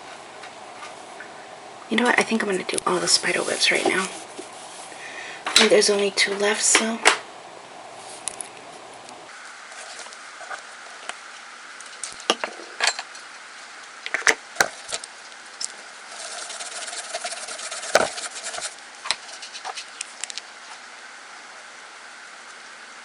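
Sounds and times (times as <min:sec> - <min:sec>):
polish scraped across plate: 0:16.1 - 0:19.8.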